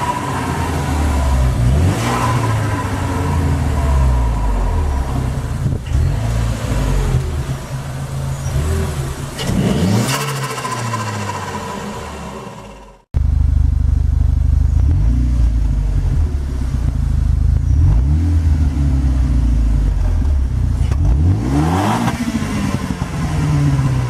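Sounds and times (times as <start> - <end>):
car engine revving: 0.0 - 24.0
rattling turbo flutter: 7.0 - 13.0.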